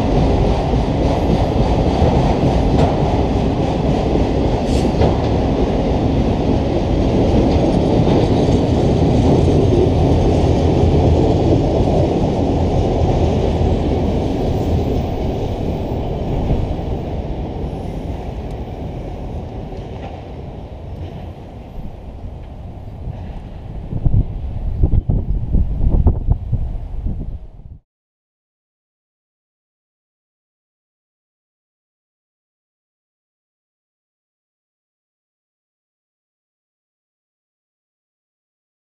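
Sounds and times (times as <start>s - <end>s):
freight train wheels rumbling: 0.0s - 27.7s.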